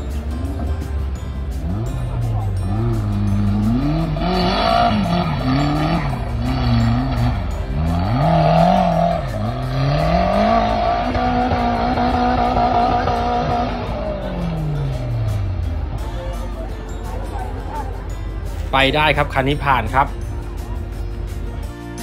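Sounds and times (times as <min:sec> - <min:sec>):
engine revving hard: 0:01.6 - 0:16.0.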